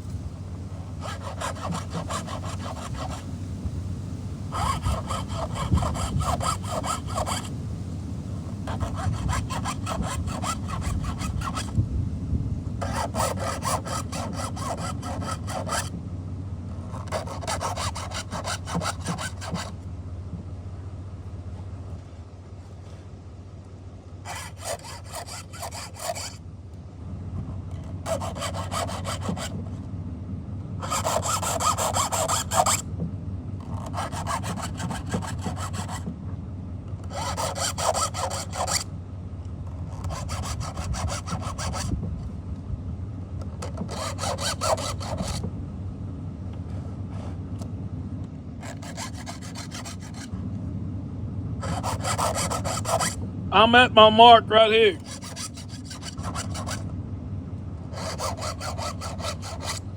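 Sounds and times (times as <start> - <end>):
file rasping on chain teeth: 1.0 - 3.2, 4.5 - 7.5, 8.7 - 11.7, 12.8 - 15.9, 16.9 - 19.7, 24.3 - 26.4, 28.0 - 29.6, 30.8 - 32.8, 33.7 - 36.0, 37.1 - 38.8, 39.9 - 42.0, 43.6 - 45.4, 48.6 - 50.3, 51.6 - 53.2, 55.0 - 56.8, 57.9 - 59.8.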